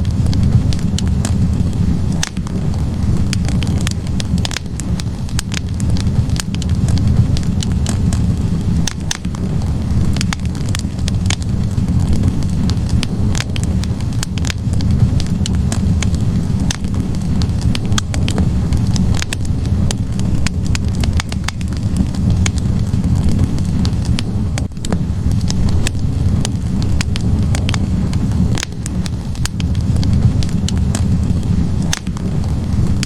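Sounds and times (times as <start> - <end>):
logs crackling and popping: 0.0 - 33.0
low roar of flames: 0.0 - 33.0.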